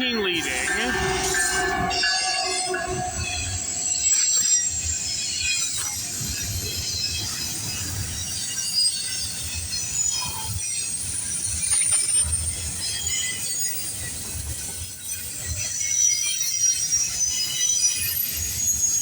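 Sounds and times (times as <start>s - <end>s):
wheels squealing: 0.0s - 8.0s
freight train rumble: 0.0s - 17.2s.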